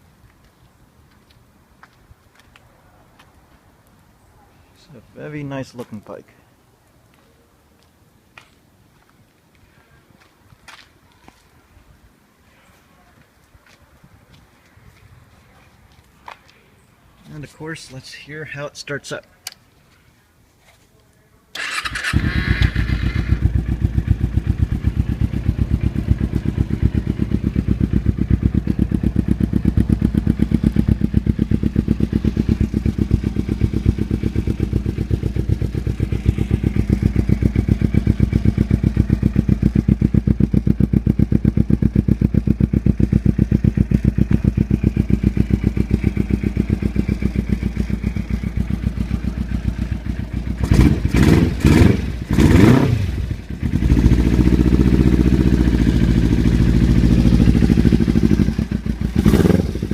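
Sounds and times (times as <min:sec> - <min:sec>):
motorcycle starter cranking: 0:21.6 - 0:23.5
motorcycle engine idling: 0:21.6 - 0:59.9.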